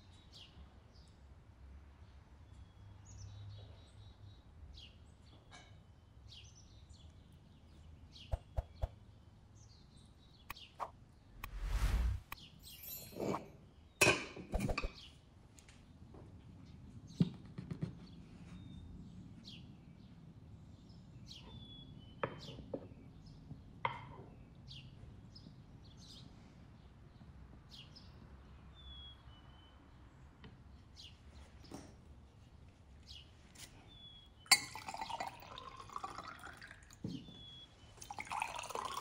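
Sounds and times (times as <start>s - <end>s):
birds chirping: 8.0s - 9.2s
cutlery clinking: 12.6s - 14.7s.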